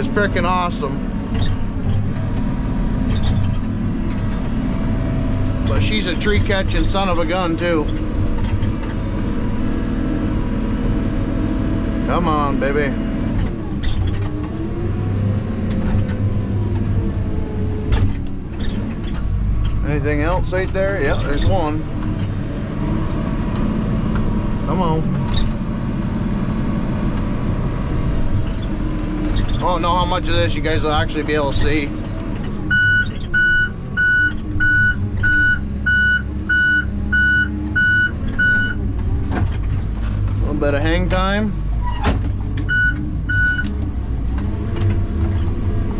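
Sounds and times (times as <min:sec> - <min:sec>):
diesel engine running under load: 0:00.0 - 0:45.9
reversing alarm beeping: 0:32.7 - 0:38.8, 0:42.7 - 0:43.7.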